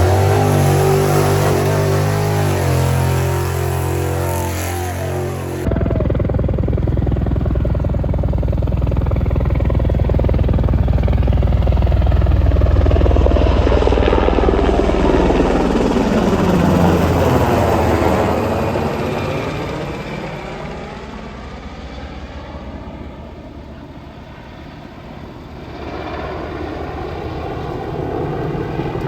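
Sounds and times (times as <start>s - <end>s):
car engine revving high: 0.0s - 5.8s.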